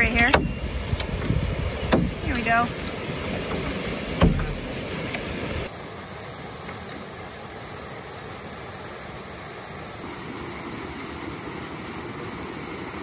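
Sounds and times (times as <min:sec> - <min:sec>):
waterfall rushing over rocks: 0:00.0 - 0:13.0.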